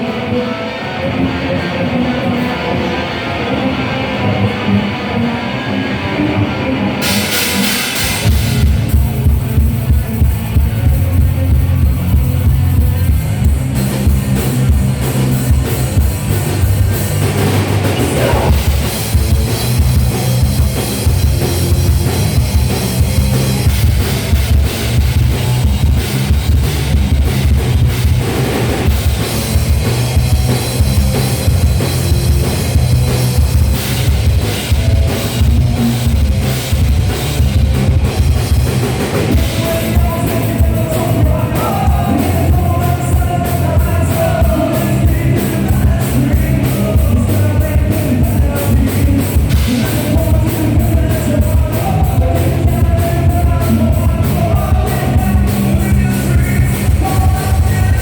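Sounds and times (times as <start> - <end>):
bass guitar: 0.0 - 58.0
electric guitar: 0.0 - 58.0
drum kit: 6.4 - 58.0.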